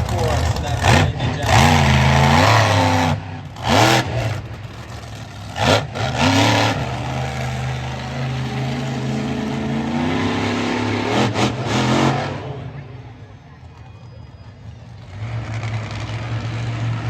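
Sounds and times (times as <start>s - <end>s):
monster truck engine revving: 0.0s - 13.2s, 14.3s - 17.0s.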